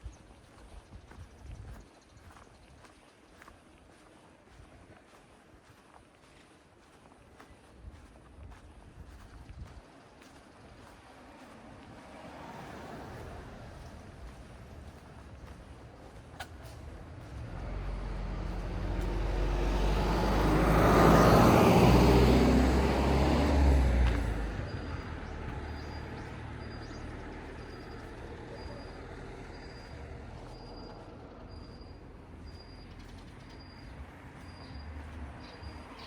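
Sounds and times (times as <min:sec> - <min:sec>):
vehicle driving past: 0:10.8 - 0:36.0.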